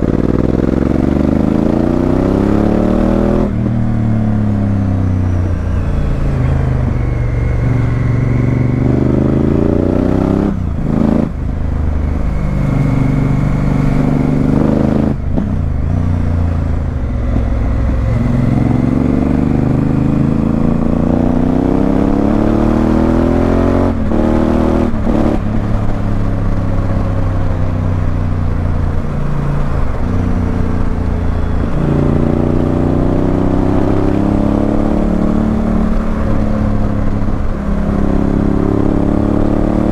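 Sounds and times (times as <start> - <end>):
motorcycle engine accelerating: 0.0 - 39.9
wind and road noise: 0.0 - 39.9.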